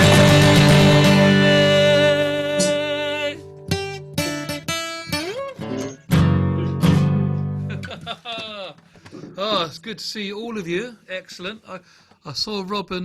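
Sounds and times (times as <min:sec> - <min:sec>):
acoustic guitar strumming: 0:00.0 - 0:07.9.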